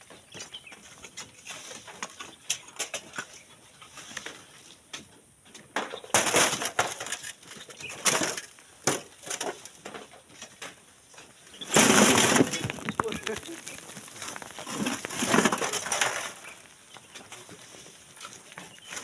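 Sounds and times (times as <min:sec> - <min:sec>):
sand and stones crunching: 0:11.3 - 0:19.0.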